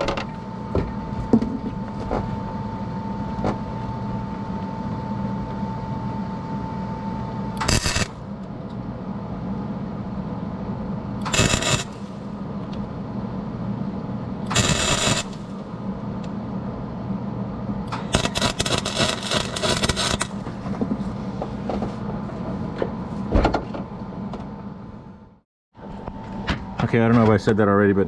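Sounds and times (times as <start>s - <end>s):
machine hum: 0.0s - 28.0s
welding arc crackle: 7.6s - 8.2s, 11.3s - 12.2s, 14.5s - 15.6s, 17.9s - 20.5s.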